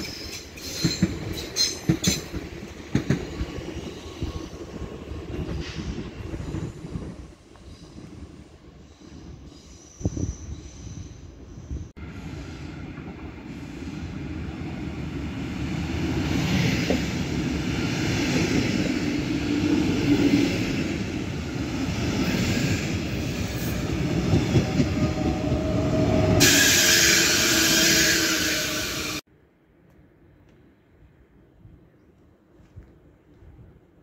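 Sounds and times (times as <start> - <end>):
train wheels rumbling on rails: 0.0 - 29.2
high-pitched squeal: 22.6 - 29.2.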